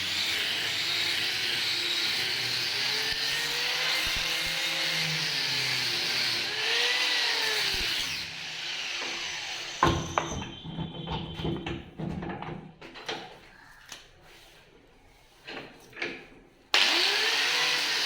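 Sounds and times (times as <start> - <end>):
power tool hissing against wood: 16.8 - 18.0.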